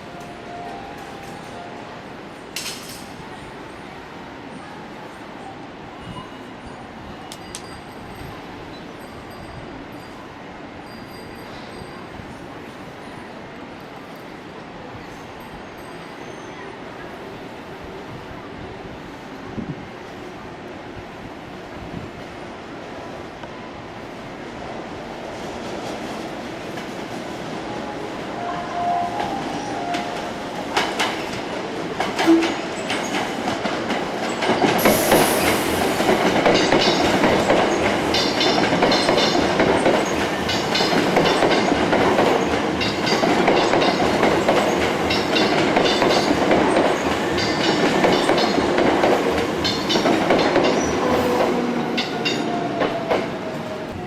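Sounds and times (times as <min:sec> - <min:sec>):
electric train passing: 0:00.0 - 0:54.0
train wheels clicking over rail joints: 0:30.7 - 0:53.4.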